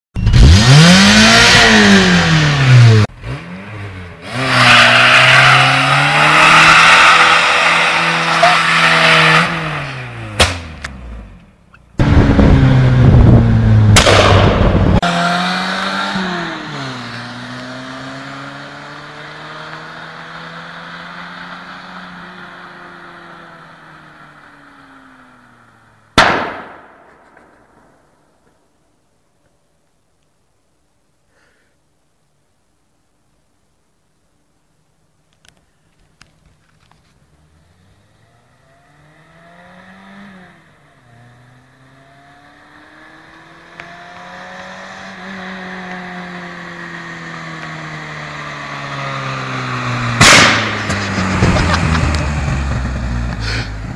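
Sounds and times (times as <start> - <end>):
car engine revving: 0.2 - 26.2, 37.2 - 53.9.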